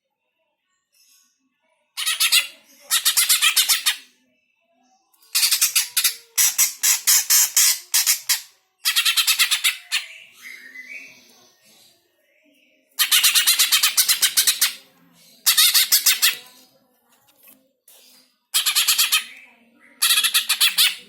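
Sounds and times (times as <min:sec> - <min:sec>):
bird chattering calls: 0:02.0 - 0:04.0, 0:05.3 - 0:10.2, 0:13.0 - 0:14.8, 0:15.5 - 0:16.4, 0:18.6 - 0:19.4, 0:20.0 - 0:21.0.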